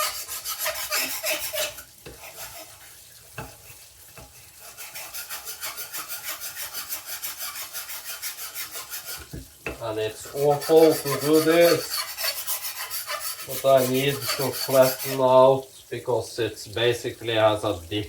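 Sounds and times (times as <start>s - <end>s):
knife scraping on sharpening stone: 0.0s - 2.8s, 4.6s - 9.3s, 10.3s - 15.2s.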